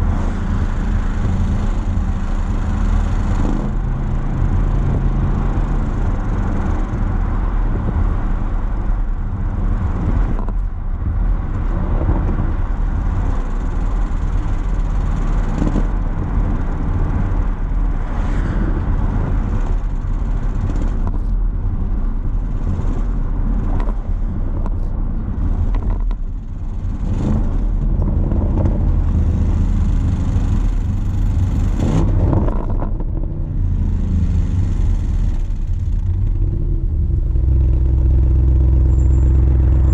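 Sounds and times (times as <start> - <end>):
car exhaust deep drone: 0.0 - 39.9.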